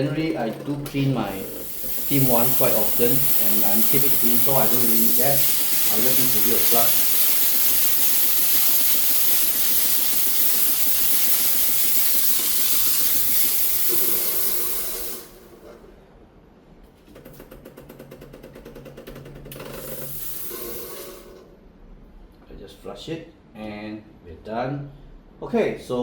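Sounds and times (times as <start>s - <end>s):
fast rhythmic mechanical buzz: 0.0s - 15.7s, 17.8s - 21.4s
steam wand hissing: 1.0s - 15.8s, 19.7s - 21.5s.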